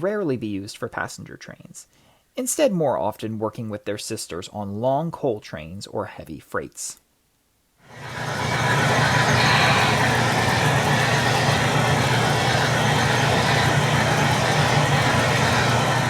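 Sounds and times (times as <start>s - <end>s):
hiss: 7.9s - 16.0s
model locomotive humming: 7.9s - 16.0s.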